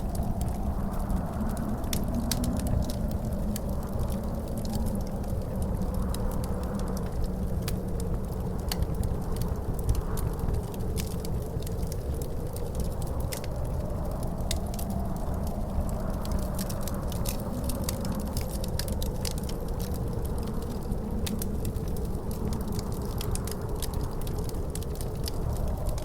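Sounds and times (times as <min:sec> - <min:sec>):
fireplace fire crackling and popping: 0:00.0 - 0:26.0
low howling wind: 0:00.0 - 0:26.0.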